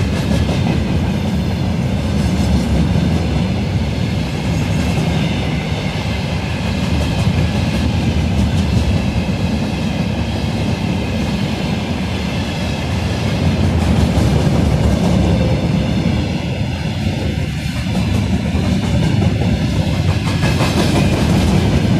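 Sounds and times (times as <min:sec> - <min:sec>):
train wheels rumbling on rail: 0:00.0 - 0:21.9
clacking over rail joints: 0:17.7 - 0:21.9.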